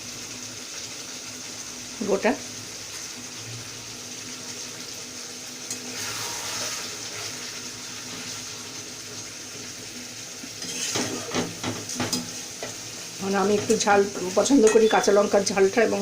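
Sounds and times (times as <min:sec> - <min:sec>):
curry sizzling in a pan: 0:00.0 - 0:16.0.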